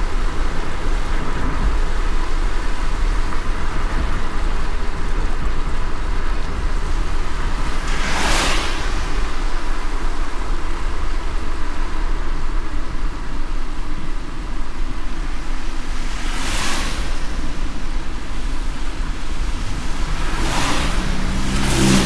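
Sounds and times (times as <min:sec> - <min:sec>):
car road rumble: 0:00.0 - 0:22.0
hiss of wet road and rain: 0:00.0 - 0:22.0
brief whoosh: 0:07.4 - 0:10.3, 0:16.0 - 0:22.0.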